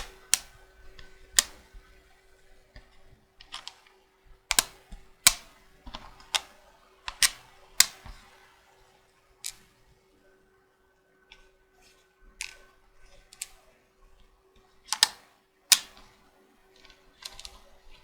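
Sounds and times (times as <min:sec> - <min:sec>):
magnetic checkers pieces clicking: 0:00.0 - 0:01.8, 0:02.9 - 0:03.9, 0:04.5 - 0:08.2, 0:12.4 - 0:12.7, 0:13.3 - 0:13.6, 0:14.9 - 0:18.0.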